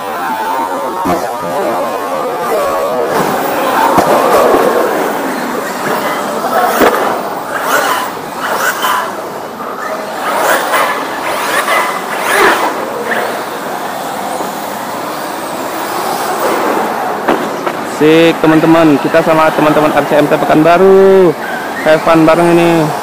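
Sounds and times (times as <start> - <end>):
tyre noise: 0.0 - 18.2.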